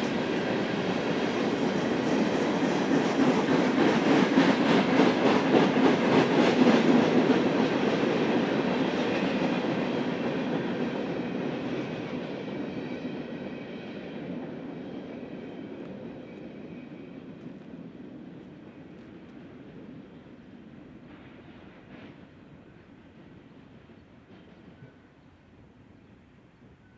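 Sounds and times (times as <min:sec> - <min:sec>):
train rolling on rails: 0:00.0 - 0:26.9.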